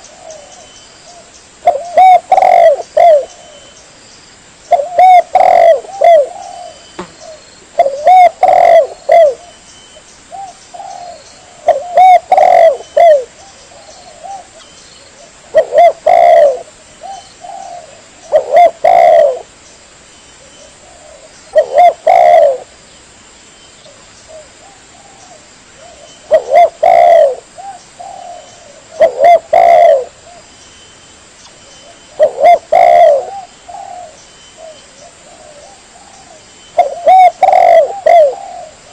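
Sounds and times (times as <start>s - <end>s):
dove cooing: 0.0s - 3.8s, 4.7s - 9.6s, 10.3s - 19.5s, 20.6s - 22.7s, 23.9s - 30.5s, 31.8s - 38.9s.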